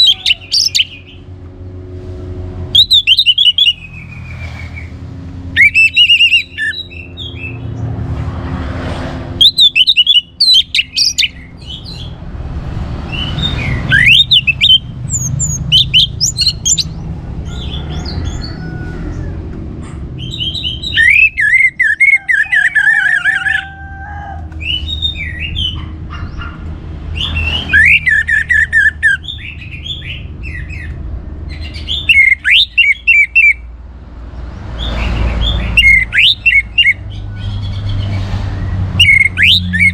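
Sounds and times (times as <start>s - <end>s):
thrush singing: 0.0s - 1.3s, 2.7s - 4.1s, 5.6s - 7.7s, 9.4s - 18.4s, 20.2s - 23.7s, 31.6s - 33.7s, 34.8s - 37.1s, 38.0s - 39.9s
low background rumble: 9.3s - 38.0s.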